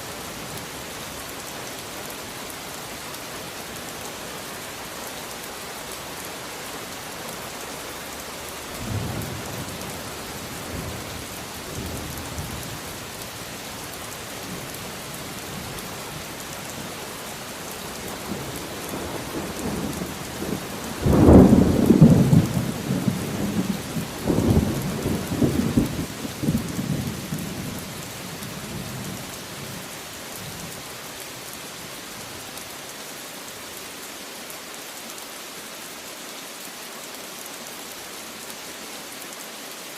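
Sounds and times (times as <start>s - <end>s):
steady rain: 0.0s - 39.9s
thunder rumbling: 18.2s - 27.8s.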